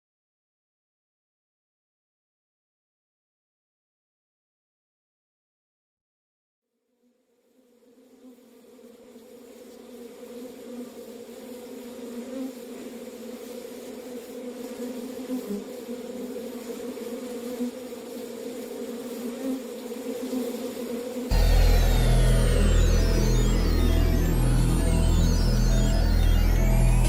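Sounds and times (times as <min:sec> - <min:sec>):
insect-like buzzing drone: 0:07.9 - 0:27.0.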